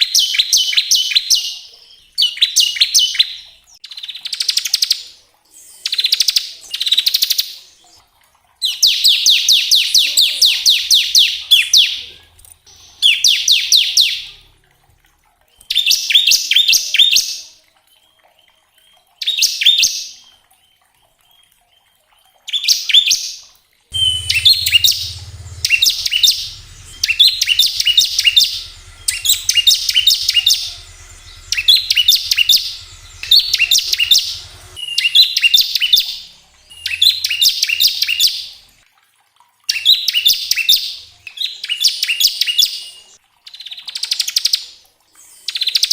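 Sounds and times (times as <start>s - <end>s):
bird singing rattling bursts: 23.9s - 38.5s.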